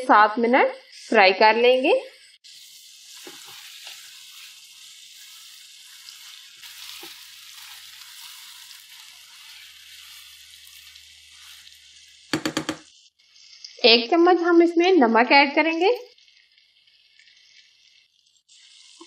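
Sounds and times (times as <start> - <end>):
chicken sizzling in fat: 0.1 - 19.0
spatula turning food: 2.3 - 13.8, 16.1 - 19.0.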